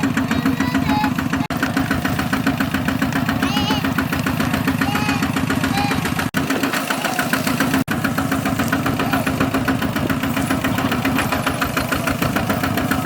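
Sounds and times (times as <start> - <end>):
diesel engine chugging: 0.0 - 13.0.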